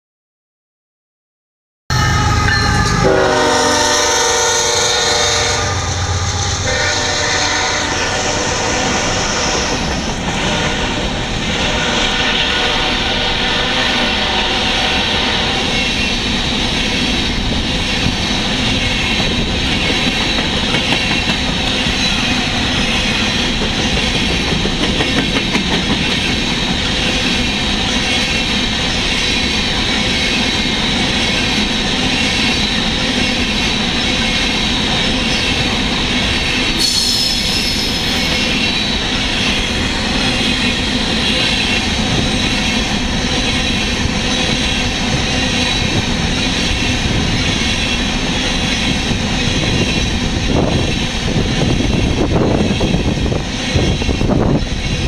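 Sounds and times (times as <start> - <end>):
locomotive horn: 1.9 - 15.9
train wheels rumbling and clacking: 2.0 - 55.0.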